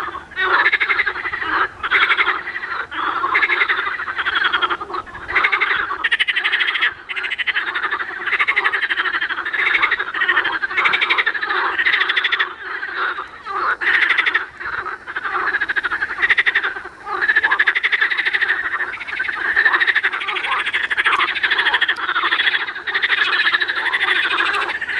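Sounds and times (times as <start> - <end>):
frogs croaking: 0.0 - 24.9.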